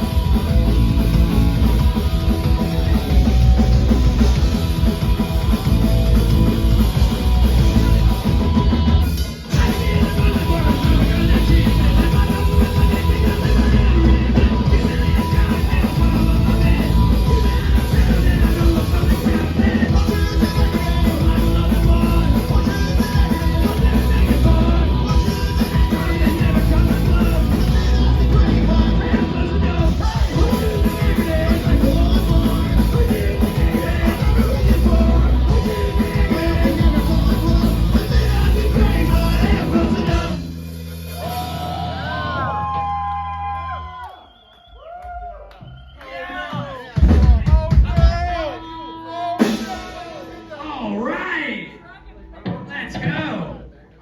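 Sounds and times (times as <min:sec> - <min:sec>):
distorted electric guitar: 0:00.0 - 0:42.9
fast drum kit: 0:00.0 - 0:43.3, 0:46.5 - 0:48.7, 0:49.4 - 0:50.6
punk rock band playing live: 0:00.0 - 0:43.6, 0:46.5 - 0:53.3
shouted vocals: 0:41.1 - 0:44.2, 0:44.8 - 0:50.2.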